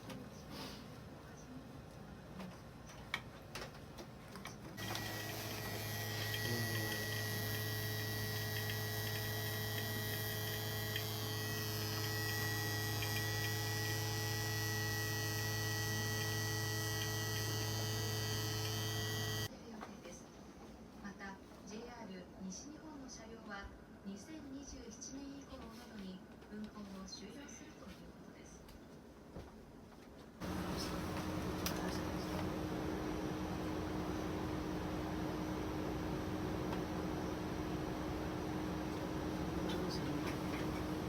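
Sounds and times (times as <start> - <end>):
electric machine humming: 4.8 - 19.5, 30.4 - 41.0.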